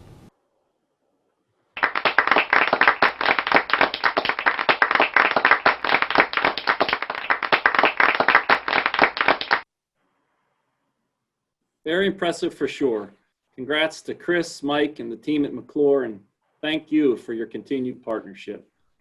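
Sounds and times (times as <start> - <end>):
crowd applause: 1.8 - 9.6.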